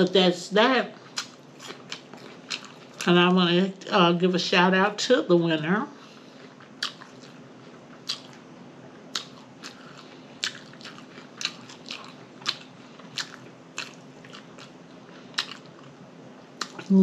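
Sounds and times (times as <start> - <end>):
person chewing food: 1.0 - 3.1, 6.0 - 17.0
wet lip smacks and mouth clicks: 9.1 - 9.8.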